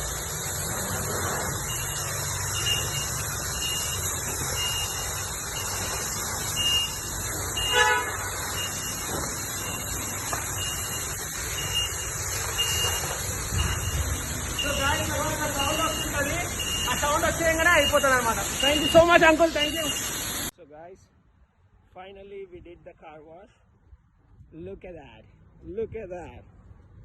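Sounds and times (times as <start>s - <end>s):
car wash equipment rushing: 0.0s - 20.5s
high electronic beep: 1.6s - 7.8s, 8.5s - 20.2s
short horn-like toot: 7.6s - 9.0s.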